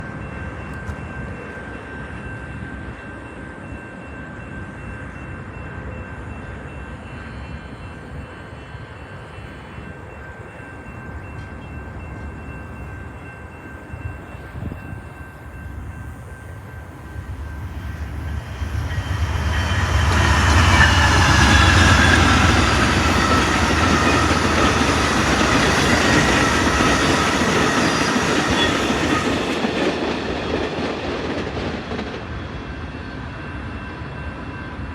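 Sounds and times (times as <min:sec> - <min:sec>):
train cars clattering: 0:10.4 - 0:32.6
locomotive rumble: 0:14.0 - 0:32.1.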